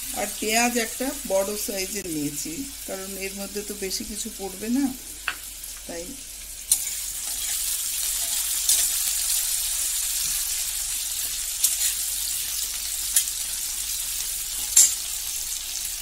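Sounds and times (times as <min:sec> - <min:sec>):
potato wedges sizzling in oil: 0:00.0 - 0:16.0
metal spatula clinking on pan: 0:08.2 - 0:09.0, 0:14.6 - 0:15.1.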